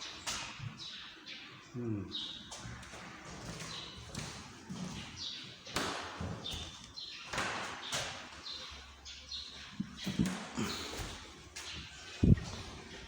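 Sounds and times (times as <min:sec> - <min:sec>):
footsteps on stairs: 0:02.5 - 0:08.5, 0:09.5 - 0:13.0.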